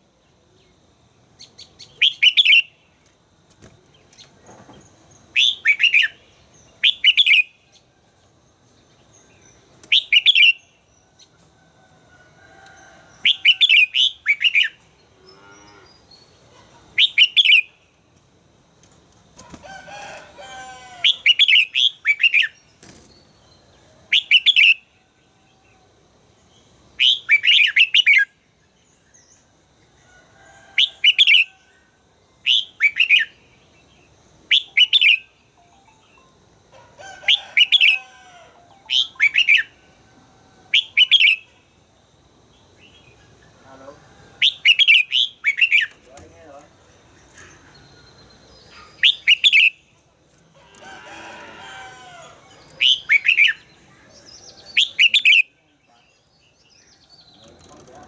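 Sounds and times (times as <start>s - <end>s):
bulbul whistled song: 1.9s - 2.7s, 5.4s - 6.2s, 34.5s - 36.2s, 38.8s - 39.8s, 52.8s - 53.7s.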